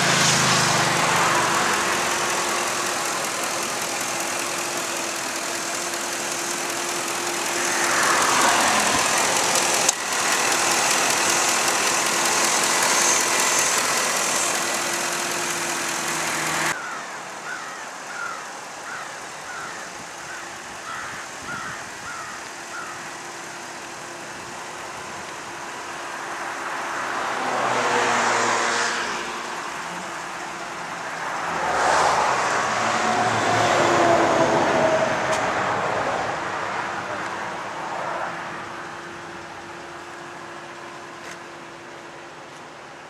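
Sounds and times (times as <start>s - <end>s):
pickup truck engine running: 0.0s - 17.0s.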